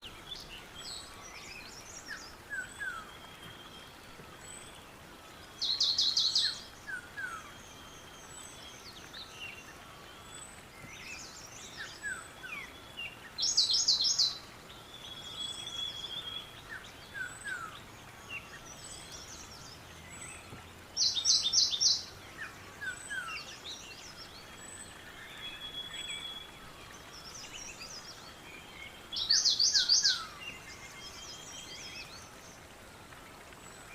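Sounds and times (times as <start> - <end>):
faint steady hiss: 0.0 - 33.9
birds chirping and whistling: 15.0 - 32.1
bird singing rapid phrase: 18.4 - 22.5, 29.0 - 31.4.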